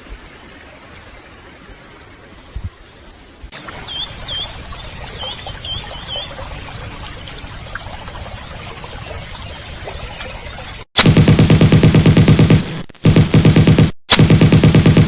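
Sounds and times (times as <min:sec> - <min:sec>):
running water trickling: 0:00.0 - 0:10.9.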